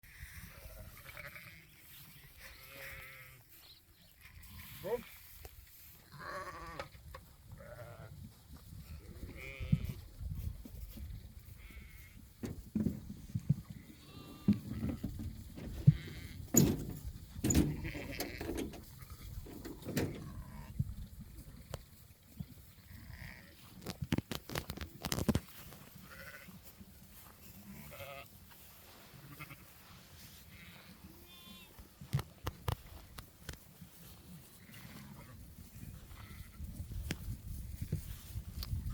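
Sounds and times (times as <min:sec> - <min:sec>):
sheep bleating: 0:00.1 - 0:03.5, 0:04.1 - 0:05.2, 0:06.1 - 0:06.9, 0:07.6 - 0:08.1, 0:09.0 - 0:10.0, 0:11.6 - 0:12.2, 0:13.8 - 0:15.1, 0:15.8 - 0:16.4, 0:17.6 - 0:19.2, 0:22.9 - 0:23.6, 0:26.0 - 0:26.6, 0:27.6 - 0:28.3, 0:29.2 - 0:29.7, 0:30.5 - 0:31.8
sharp knocks and clatter: 0:14.5 - 0:20.3
low thumps: 0:14.5 - 0:20.4.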